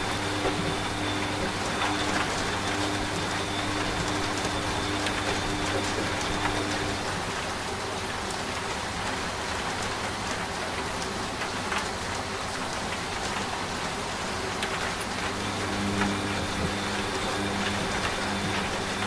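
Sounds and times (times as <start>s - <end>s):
steady rain falling: 0.0s - 19.0s
washing machine hum: 0.0s - 19.0s.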